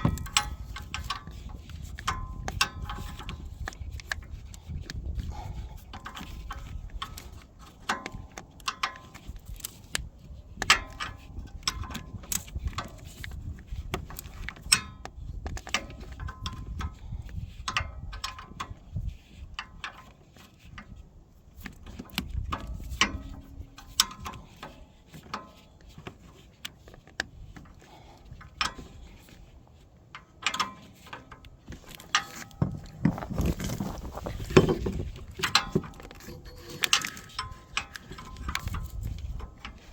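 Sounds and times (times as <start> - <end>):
wrench clinking against bolts: 0.0 - 4.1, 34.5 - 39.0
low rumble of handling: 30.8 - 39.9.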